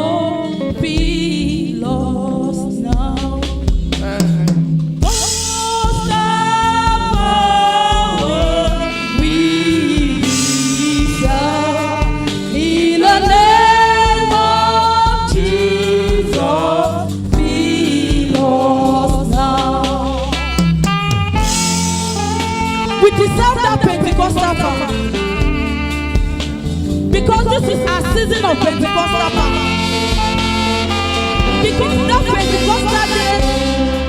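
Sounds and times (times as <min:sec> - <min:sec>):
choir singing: 0:00.0 - 0:04.2, 0:05.0 - 0:20.4, 0:27.1 - 0:34.0
lead singer: 0:00.0 - 0:20.6, 0:22.2 - 0:34.0
band with bass and drums: 0:00.0 - 0:34.0.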